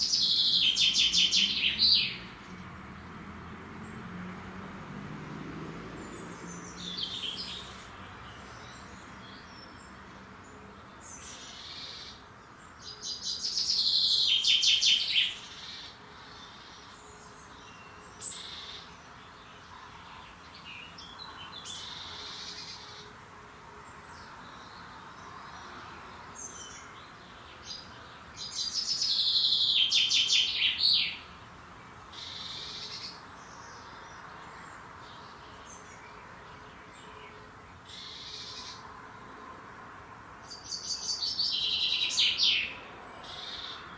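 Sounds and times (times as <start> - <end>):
bird chirps and calls: 0.0 - 2.3, 6.0 - 9.9, 27.7 - 31.3, 40.5 - 43.9
bird song of rapid notes: 0.0 - 3.0, 5.9 - 23.1, 26.3 - 38.8, 40.4 - 43.9.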